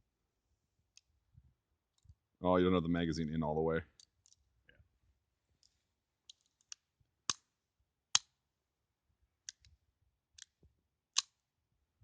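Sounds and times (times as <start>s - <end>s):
pistol metal clicks: 6.3s - 7.5s, 8.1s - 8.4s, 9.4s - 11.4s.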